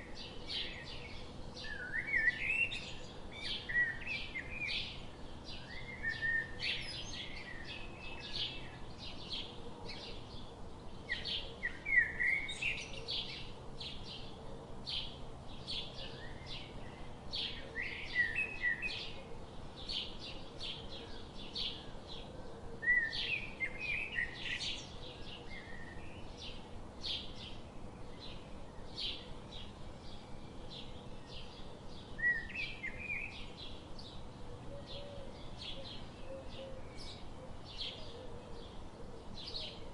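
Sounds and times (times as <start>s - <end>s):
low steady background noise: 0.0s - 39.9s
small birds chirping: 0.0s - 39.9s.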